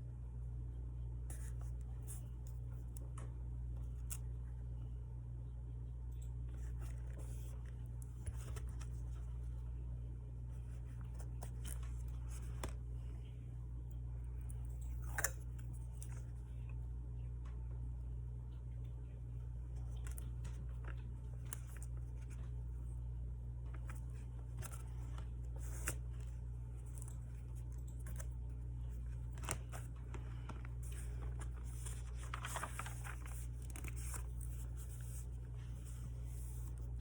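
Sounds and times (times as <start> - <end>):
steady low hum: 0.0 - 37.0
paper rustling: 6.5 - 9.6, 10.5 - 12.9, 23.6 - 37.0.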